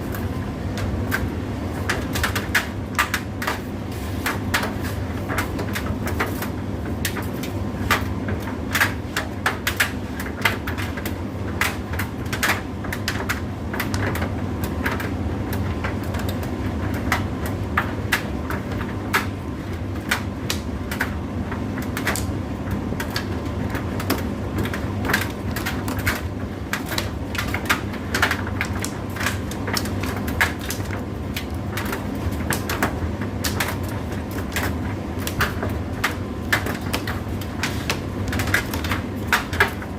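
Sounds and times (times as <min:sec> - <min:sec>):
tumble dryer motor humming: 0:00.0 - 0:39.9.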